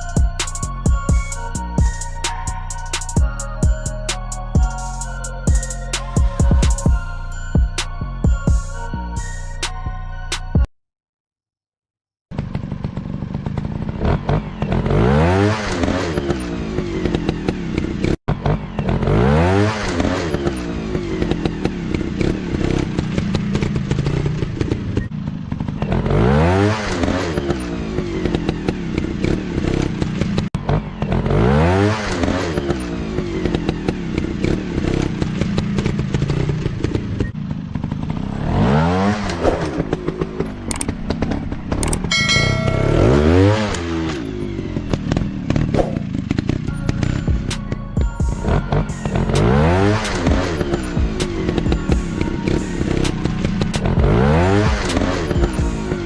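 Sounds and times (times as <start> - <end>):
dirt bike engines revving: 12.4 - 56.0.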